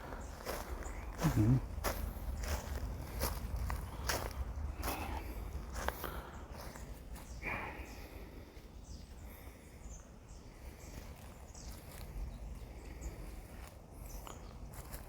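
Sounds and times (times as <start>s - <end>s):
wind rumble on microphone: 1.0s - 5.9s.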